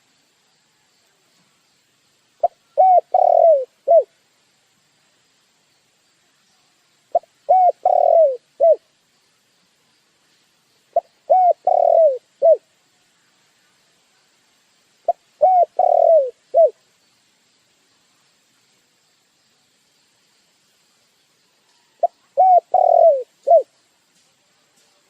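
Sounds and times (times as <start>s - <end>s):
dove cooing: 2.4s - 4.1s, 7.1s - 8.8s, 10.9s - 12.6s, 15.1s - 16.8s, 22.0s - 23.7s.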